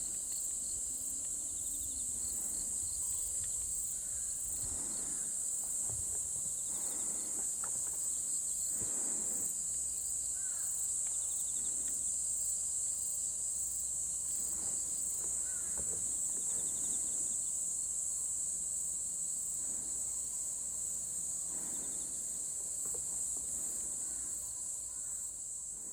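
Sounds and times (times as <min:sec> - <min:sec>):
crickets trilling: 0:00.0 - 0:25.9.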